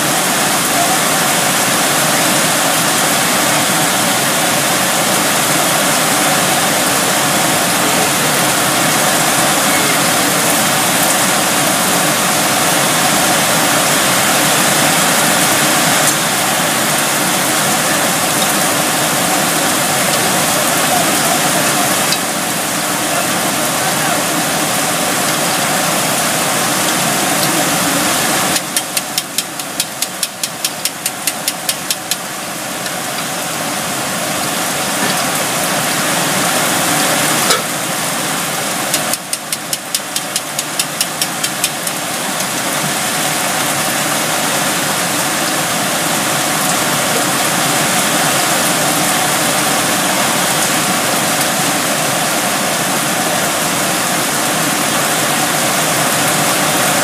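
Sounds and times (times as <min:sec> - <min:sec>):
heavy rain and wind: 0:00.0 - 0:57.0
rapid regular clicking: 0:28.5 - 0:32.2, 0:38.9 - 0:41.9.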